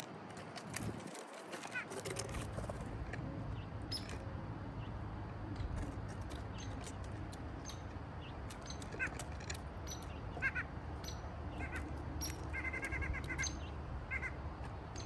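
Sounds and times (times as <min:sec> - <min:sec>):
high-pitched bird chirps: 0:09.9 - 0:14.4.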